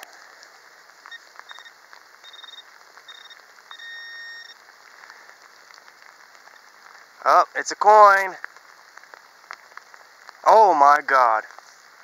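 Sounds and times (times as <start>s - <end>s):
heavy rain hissing: 0.0s - 12.0s
metal detector beeping: 1.1s - 4.6s.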